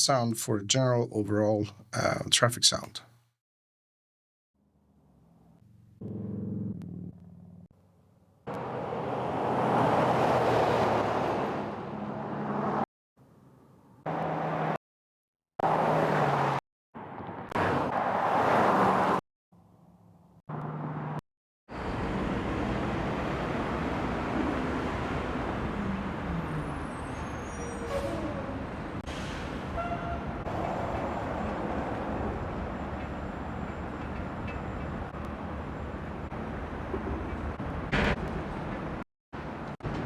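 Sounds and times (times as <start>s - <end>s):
city traffic: 8.4s - 14.8s, 15.6s - 40.0s.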